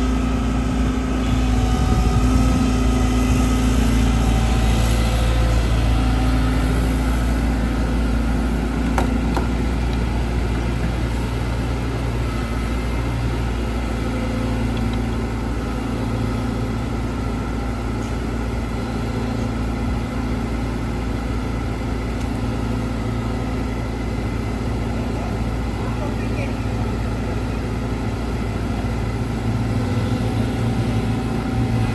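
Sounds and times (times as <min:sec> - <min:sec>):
excavator diesel engine running: 0:00.0 - 0:31.9.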